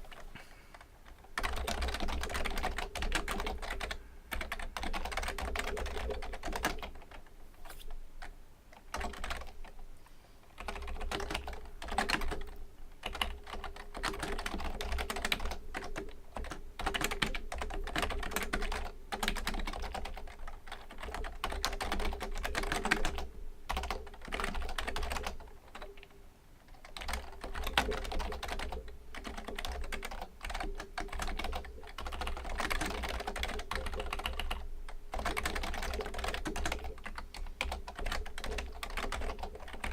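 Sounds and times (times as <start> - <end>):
keyboard typing clicks: 0.1 - 7.2, 26.7 - 39.9.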